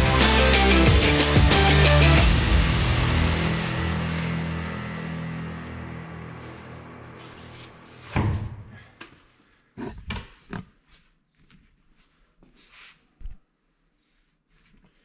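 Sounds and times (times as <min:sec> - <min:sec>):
background music: 0:00.0 - 0:08.4
loud thump: 0:08.1 - 0:08.7.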